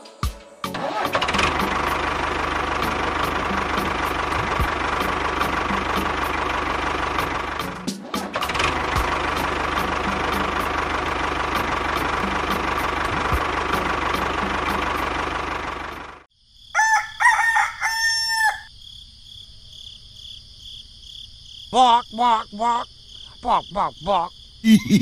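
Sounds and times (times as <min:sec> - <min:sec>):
crickets chirping: 0:16.3 - 0:25.0
rooster crowing: 0:16.7 - 0:18.7.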